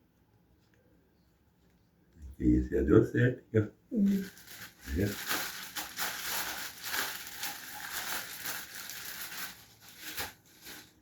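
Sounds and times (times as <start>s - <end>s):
food crinkling and rustling: 4.0s - 11.0s.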